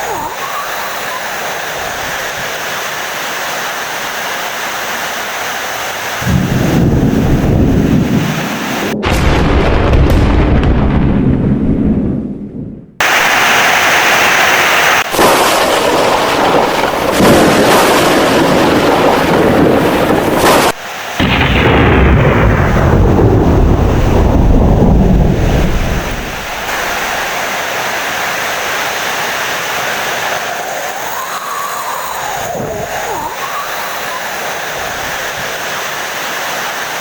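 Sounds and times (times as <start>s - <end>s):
heavy rain: 0.0s - 10.6s, 13.0s - 37.0s
thunder rumbling: 6.2s - 27.8s.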